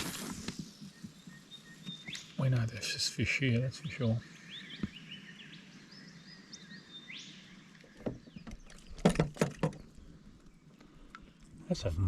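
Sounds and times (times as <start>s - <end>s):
birds chirping: 0.0s - 12.0s
knocks and splashes around kayak: 7.8s - 10.4s.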